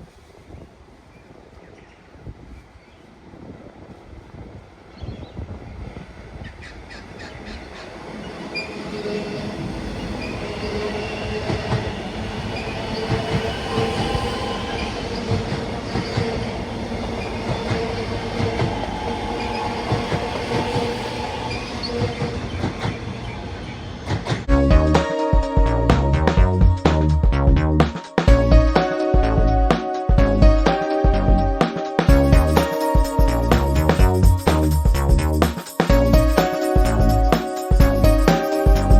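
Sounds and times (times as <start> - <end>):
electric train on rails: 0.0 - 38.9
train wheels squealing: 6.5 - 24.4
rail joint clicks: 9.6 - 24.5.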